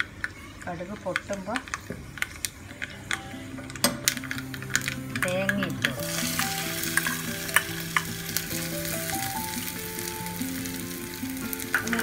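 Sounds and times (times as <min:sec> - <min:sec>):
seeds sizzling in hot oil: 0:00.8 - 0:12.0.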